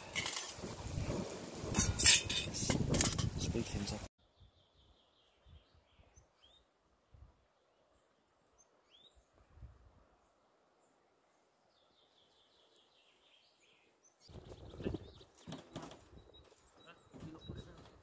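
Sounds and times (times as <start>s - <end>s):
faint birdsong: 4.2s - 18.0s.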